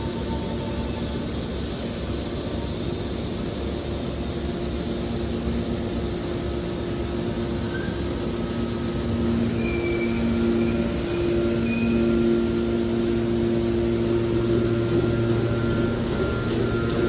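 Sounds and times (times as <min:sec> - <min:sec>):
baler compactor machine hum: 0:00.0 - 0:17.0
faint high squeals: 0:07.6 - 0:17.0.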